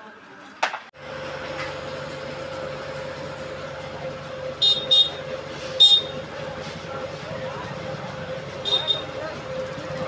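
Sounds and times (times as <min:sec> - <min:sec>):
street hum: 0:00.0 - 0:10.0
short shrill horn toots: 0:04.6 - 0:06.2, 0:08.6 - 0:09.1.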